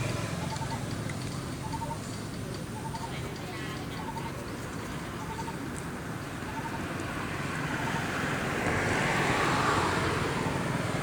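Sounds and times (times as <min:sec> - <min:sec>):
vehicle engine running: 0:00.0 - 0:05.4.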